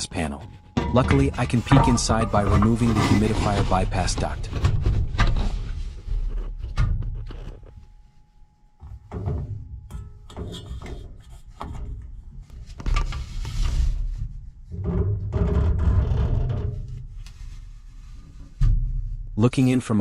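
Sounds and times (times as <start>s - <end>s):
sheet metal duct clunking: 0.6s - 5.9s.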